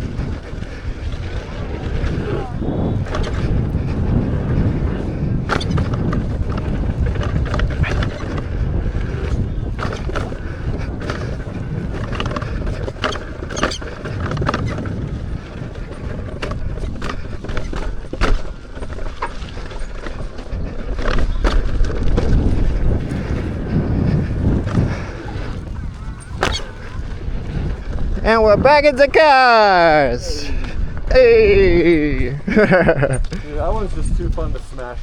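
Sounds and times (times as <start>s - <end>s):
tyre clicking on rough ground: 0.0s - 31.1s, 32.4s - 34.8s
wind buffeting microphone: 0.0s - 35.0s.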